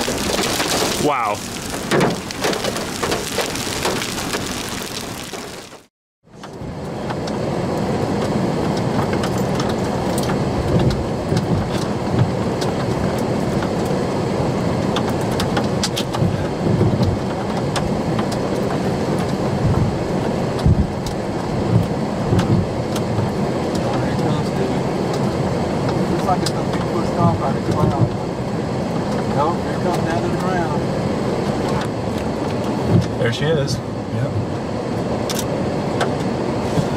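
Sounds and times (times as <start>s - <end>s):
rain pattering on vehicle: 0.0s - 5.9s, 14.9s - 28.2s
vehicle rumbling: 0.0s - 36.9s.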